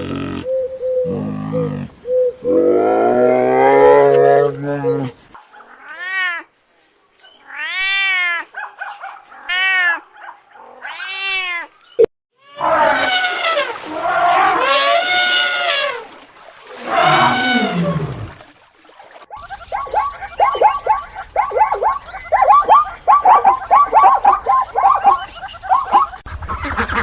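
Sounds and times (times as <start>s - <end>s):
cat yowling: 9.4s - 10.1s.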